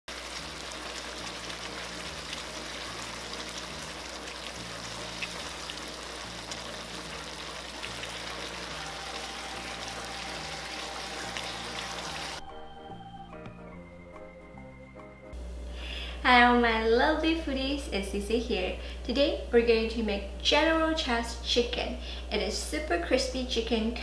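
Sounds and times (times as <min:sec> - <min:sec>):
chicken sizzling in a pan: 0:00.1 - 0:12.4.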